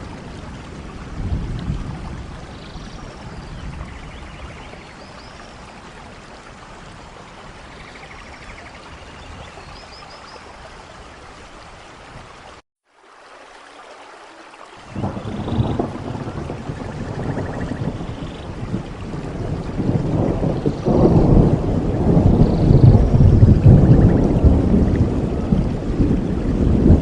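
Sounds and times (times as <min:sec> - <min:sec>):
thunder rumble: 0:00.0 - 0:05.0, 0:14.8 - 0:27.0
steady rain falling: 0:00.0 - 0:27.0.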